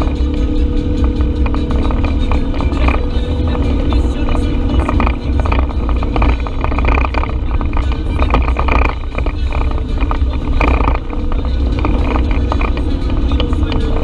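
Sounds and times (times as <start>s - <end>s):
knocks and rattles: 0.0s - 14.0s
utility vehicle engine running: 0.0s - 14.0s.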